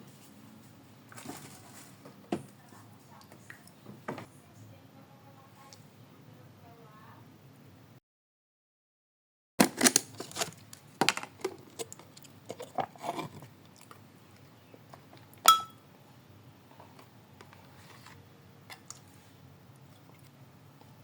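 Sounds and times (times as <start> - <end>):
sharp ringing clink: 15.5 - 15.8.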